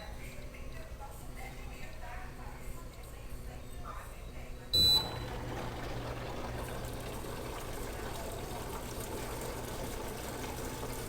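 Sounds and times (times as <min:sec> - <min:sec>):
water rushing into washing machine: 0:04.8 - 0:11.0.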